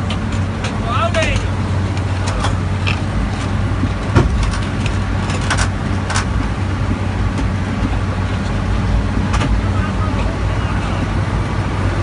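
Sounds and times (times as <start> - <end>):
sharp clicks and knocks: 0.0 - 8.6, 9.2 - 9.6
diesel engine running: 0.0 - 12.0.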